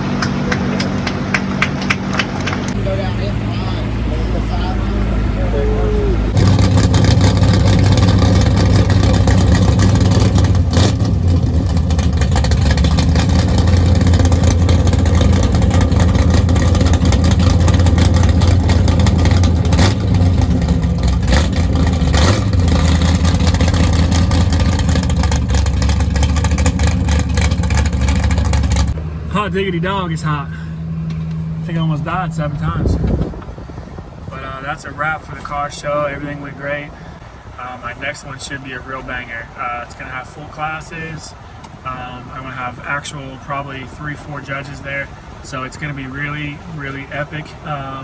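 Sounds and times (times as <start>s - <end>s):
car engine running: 0.0s - 34.2s.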